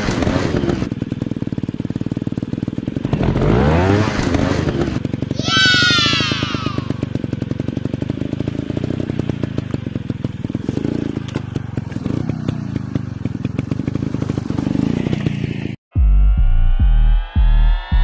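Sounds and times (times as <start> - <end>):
dirt bike engine running: 0.0 - 15.8
high whine: 15.9 - 18.0.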